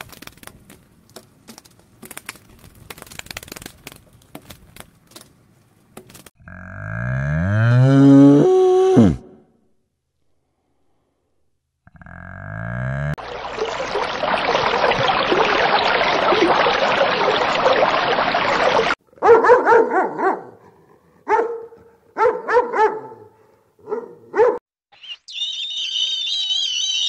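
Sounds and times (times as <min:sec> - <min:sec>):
dog barking: 0:19.2 - 0:24.6
high wavering bird calls: 0:24.9 - 0:27.0.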